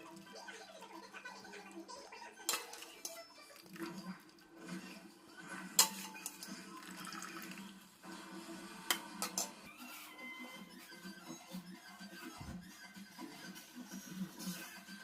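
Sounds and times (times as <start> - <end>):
water running: 0.0 - 9.6.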